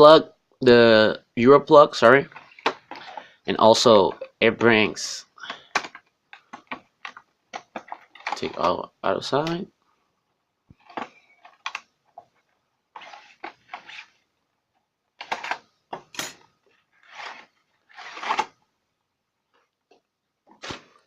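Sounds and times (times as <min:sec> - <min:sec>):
packaging rustling and clicking: 0:05.4 - 0:08.8, 0:10.7 - 0:14.2, 0:17.0 - 0:18.6.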